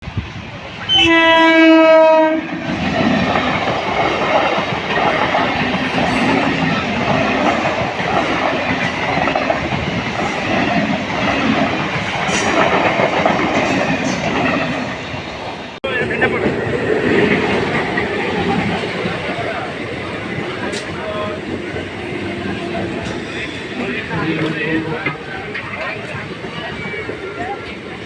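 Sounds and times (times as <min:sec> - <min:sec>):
train horn blast: 0:00.9 - 0:02.6
train wheels clickety-clack: 0:02.5 - 0:28.0.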